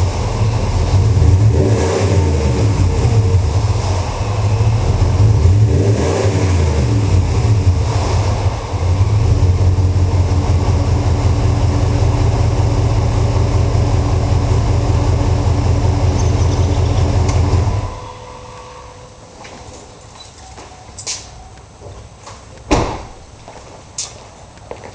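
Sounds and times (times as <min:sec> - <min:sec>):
car engine revving and idling: 0:00.0 - 0:19.1.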